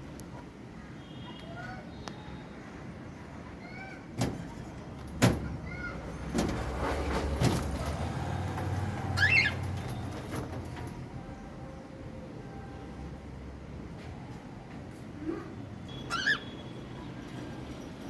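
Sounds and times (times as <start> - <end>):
cockatiel chirping: 9.2 - 9.6, 15.9 - 16.6
bird warbling whistle: 15.9 - 16.7.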